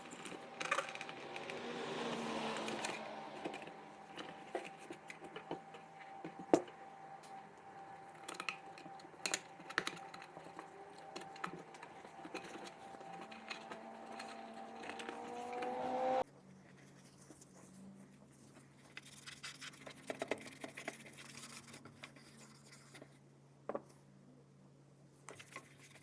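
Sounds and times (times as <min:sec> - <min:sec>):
steady hum: 0:00.0 - 0:16.2.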